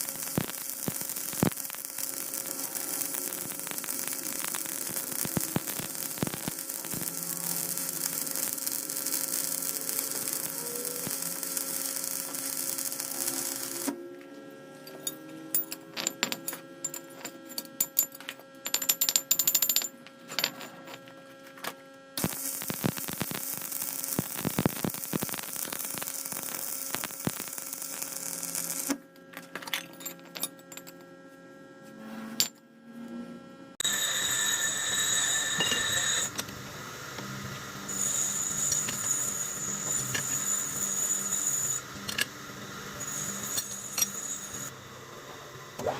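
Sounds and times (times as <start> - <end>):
lathe humming: 33.8 - 45.9.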